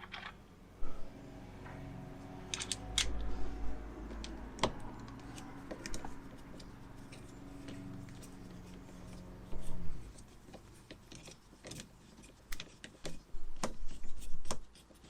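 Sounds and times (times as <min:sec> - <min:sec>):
hand tools clicking and tapping: 0:04.1 - 0:09.2, 0:10.2 - 0:15.0.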